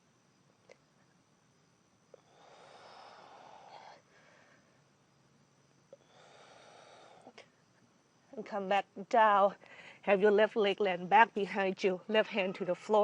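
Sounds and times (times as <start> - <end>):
woman breathing: 2.1 - 4.9, 5.9 - 7.5, 9.6 - 10.1.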